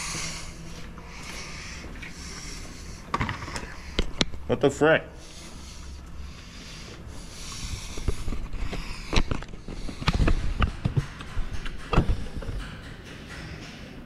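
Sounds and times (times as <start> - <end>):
tools knocking and clanking: 9.1 - 14.0.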